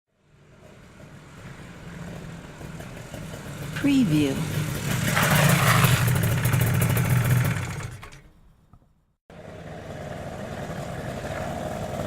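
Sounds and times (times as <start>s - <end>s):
motorcycle engine idling: 0.3s - 8.3s
motorcycle engine starting: 0.4s - 8.5s, 9.3s - 12.0s.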